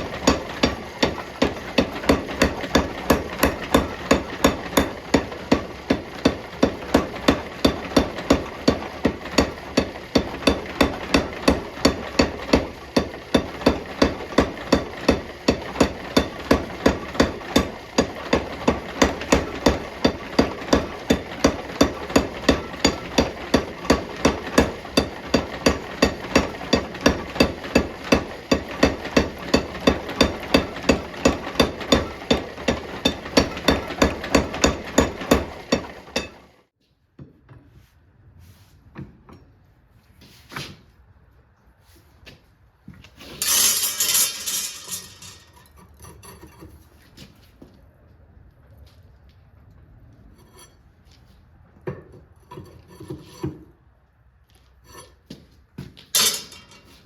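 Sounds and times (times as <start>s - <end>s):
hammer striking hot steel: 0.0s - 36.4s, 43.4s - 45.8s, 56.2s - 56.9s.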